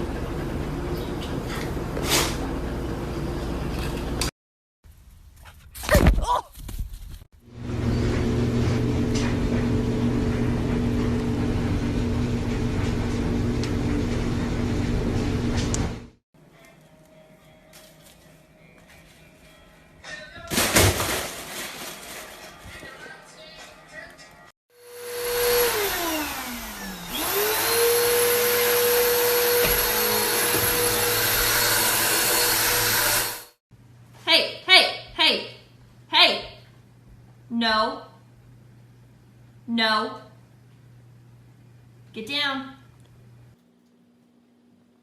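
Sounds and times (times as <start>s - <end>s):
motor humming and rushing: 24.8s - 33.6s.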